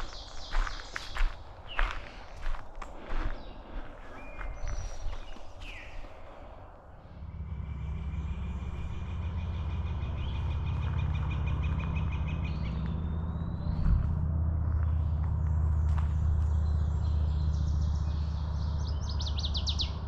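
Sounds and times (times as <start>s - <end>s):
songbirds singing: 0.0s - 20.0s
low steady motor drone: 2.4s - 20.0s.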